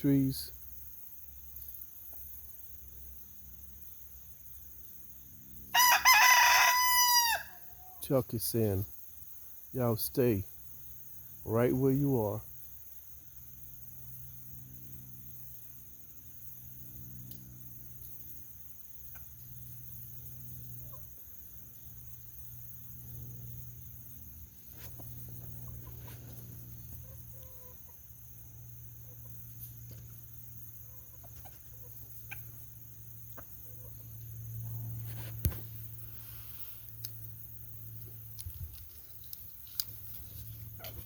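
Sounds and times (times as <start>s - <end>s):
chickens clucking: 24.6s - 28.2s, 30.8s - 35.1s.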